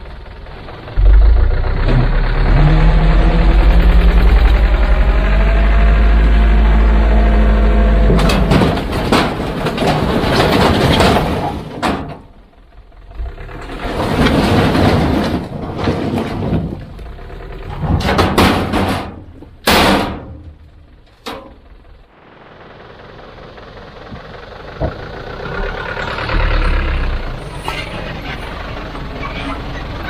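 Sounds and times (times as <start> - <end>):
knocks and bangs: 1.0 - 5.6, 8.0 - 12.2.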